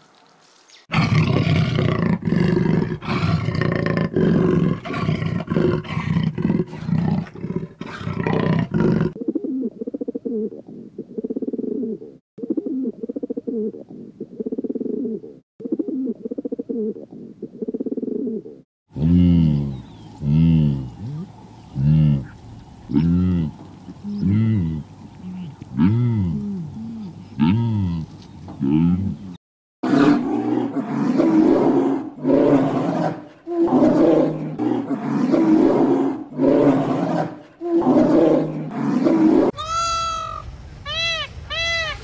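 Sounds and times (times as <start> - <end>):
animal growling: 0.9 - 9.2, 18.2 - 39.6
animal grunting calls: 0.9 - 17.0, 17.6 - 40.4
low animal calls rising and falling: 30.0 - 42.0.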